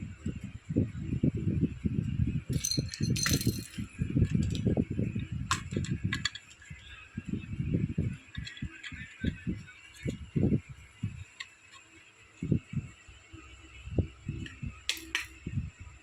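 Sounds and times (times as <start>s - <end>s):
plastic toy pieces knocking: 2.5s - 4.7s, 5.5s - 6.7s, 8.3s - 10.2s, 14.9s - 15.4s.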